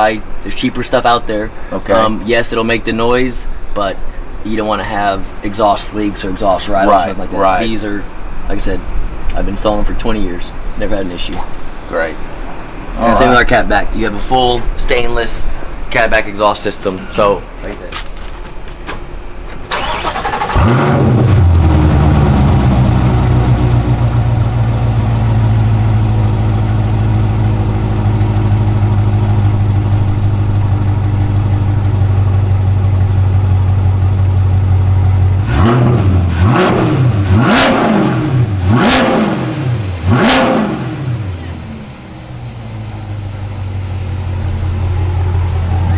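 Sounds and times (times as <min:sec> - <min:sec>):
car engine fast idle: 0:19.7 - 0:45.9
engine throttle blips: 0:19.7 - 0:45.9.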